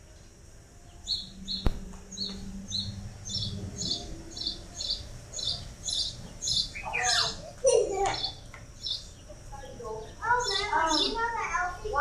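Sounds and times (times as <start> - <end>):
small birds chirping: 1.0 - 12.0
sharp click: 1.7 - 2.4.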